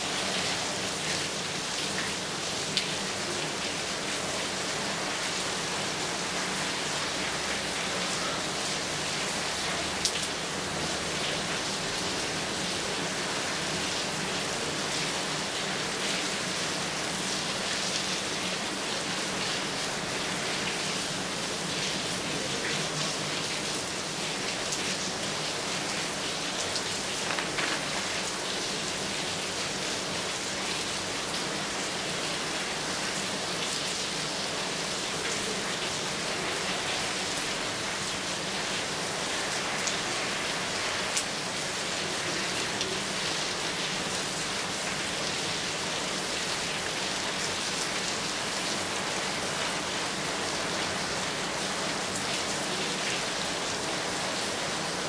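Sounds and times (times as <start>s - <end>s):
steady rain falling: 0.0s - 55.0s
raindrops tapping close by: 26.6s - 28.7s.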